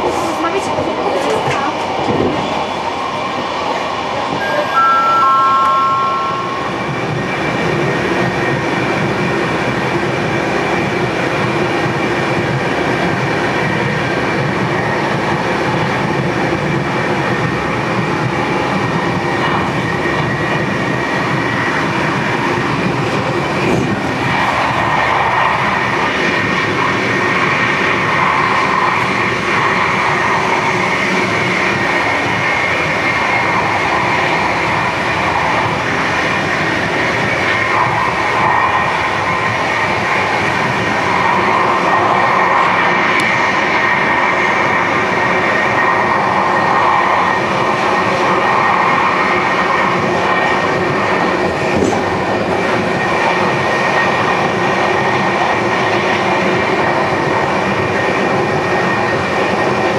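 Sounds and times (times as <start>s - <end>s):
passenger train rumbling: 0.0s - 59.9s
descending three-tone chime: 4.4s - 7.2s.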